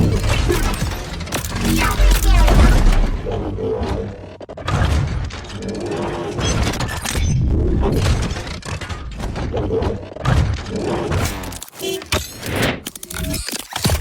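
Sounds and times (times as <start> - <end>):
music: 0.0 - 3.2.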